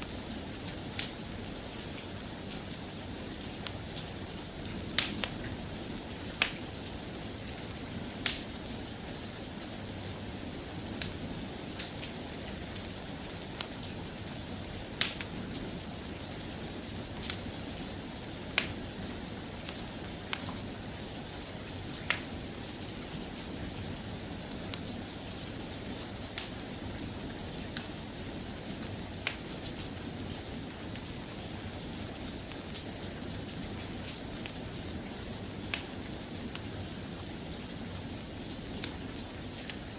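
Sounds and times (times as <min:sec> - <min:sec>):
soft rain: 0:00.0 - 0:39.9
wood fire crackling: 0:00.1 - 0:08.6, 0:10.9 - 0:23.4, 0:24.2 - 0:27.0, 0:29.2 - 0:29.9, 0:33.7 - 0:39.9.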